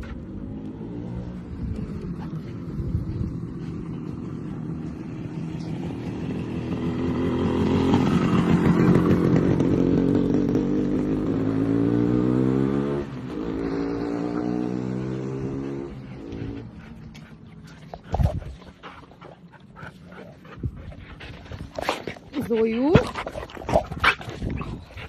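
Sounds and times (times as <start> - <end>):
motorcycle engine accelerating: 0.0 - 17.3.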